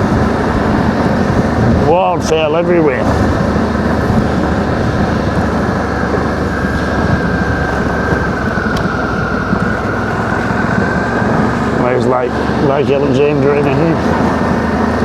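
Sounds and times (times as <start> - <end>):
motorcycle engine on dirt track: 0.0 - 15.0.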